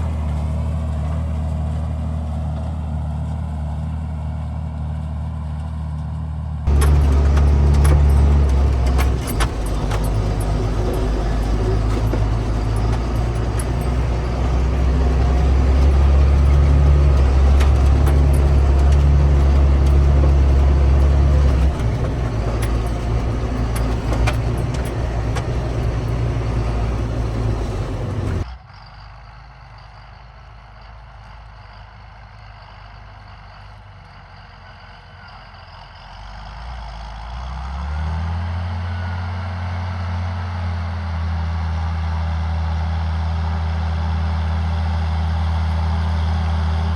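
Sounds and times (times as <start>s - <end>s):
tractor diesel engine under load: 0.0s - 5.8s, 6.6s - 28.5s, 32.9s - 46.9s
clicks and rattles: 6.7s - 28.5s.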